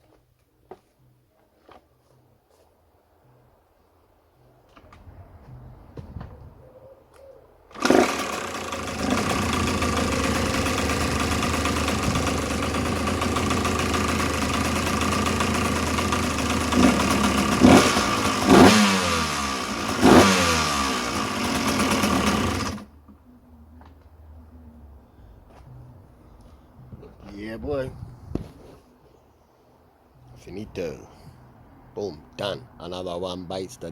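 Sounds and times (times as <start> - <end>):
two-stroke engine revving: 7.7 - 22.9.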